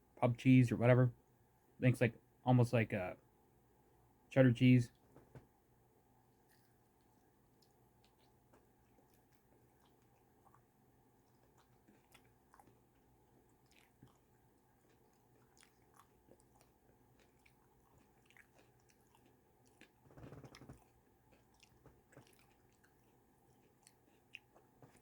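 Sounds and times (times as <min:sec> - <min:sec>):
person chewing with mouth clicks: 0:07.6 - 0:25.0.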